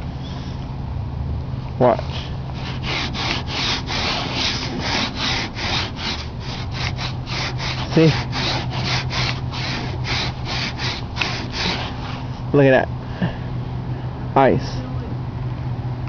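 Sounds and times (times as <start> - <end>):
ice scraping off car: 2.6 - 12.3.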